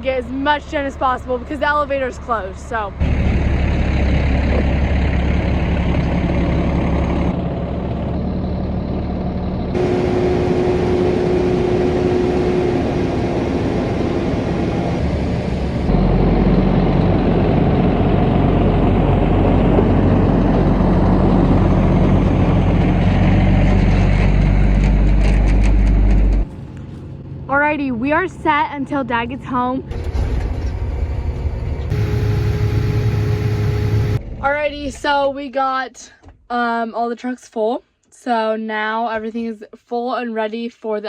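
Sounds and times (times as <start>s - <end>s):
truck and machinery engines running: 0.0s - 35.3s
steady machine whine: 9.7s - 21.6s, 29.9s - 34.4s.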